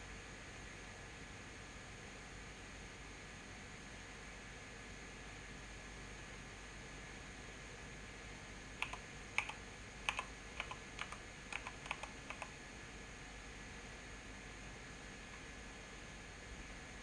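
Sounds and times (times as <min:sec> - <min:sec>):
mechanical keyboard keystrokes: 0:08.8 - 0:12.5.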